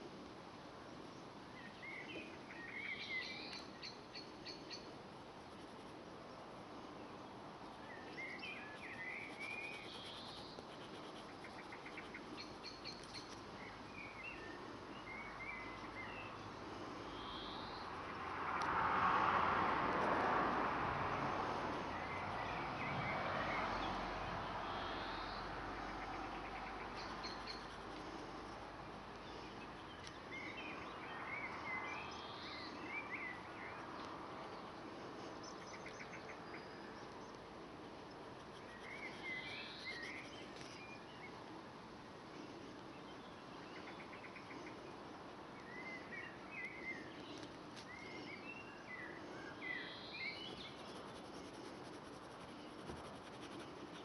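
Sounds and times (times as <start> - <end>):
small birds chirping: 1.6 - 6.4, 7.0 - 18.2, 24.6 - 41.6, 42.4 - 54.0.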